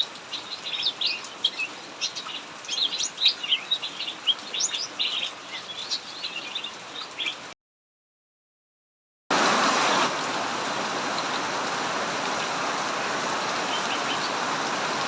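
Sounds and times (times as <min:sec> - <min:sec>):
heavy rain hiss: 0:00.0 - 0:07.5, 0:09.3 - 0:15.0
songbirds chirping: 0:00.0 - 0:07.5, 0:13.4 - 0:15.0.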